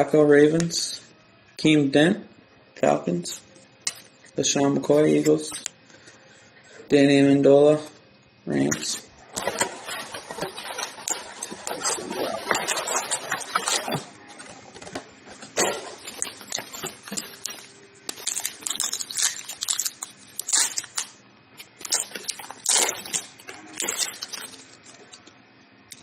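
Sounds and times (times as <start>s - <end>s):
wrapper crinkling being torn: 9.3s - 14.1s, 15.5s - 25.3s
cards being handled: 9.4s - 21.1s.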